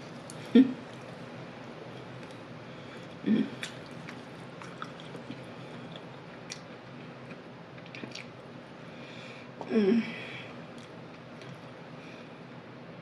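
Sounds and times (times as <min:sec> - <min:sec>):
person chewing food: 0:02.0 - 0:08.4.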